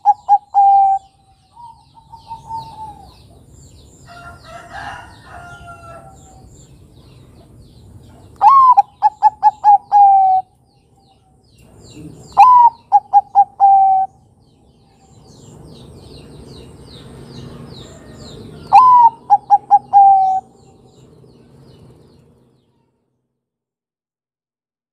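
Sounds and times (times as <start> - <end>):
dove cooing: 0.0 - 3.5, 8.4 - 10.5, 11.8 - 14.2, 17.5 - 20.8
small birds chirping: 0.0 - 23.0.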